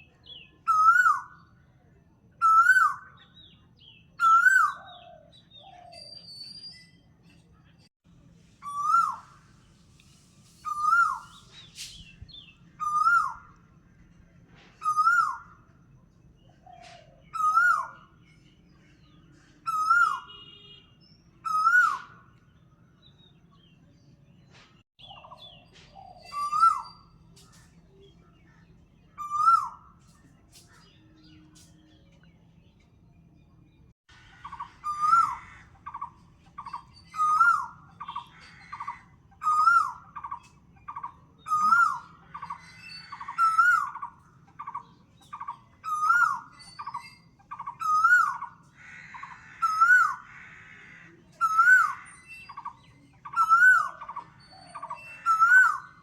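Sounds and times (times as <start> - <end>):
bird whistled call: 8.6 - 9.4, 10.6 - 13.6, 14.8 - 15.6, 17.2 - 18.1, 19.6 - 20.8, 21.4 - 22.2, 25.0 - 27.3, 29.2 - 30.0, 34.5 - 48.6, 51.4 - 56.0.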